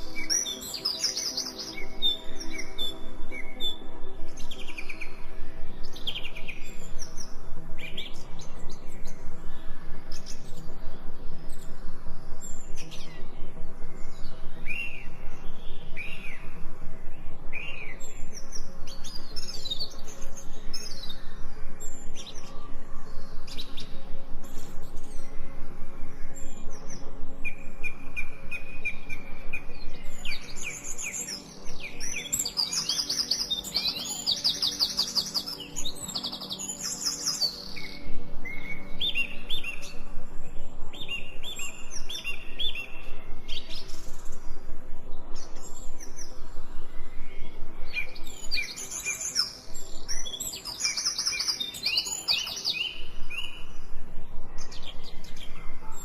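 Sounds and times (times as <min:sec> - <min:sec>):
faint low drone: 0:00.0 - 0:56.0
songbirds singing: 0:00.0 - 0:56.0.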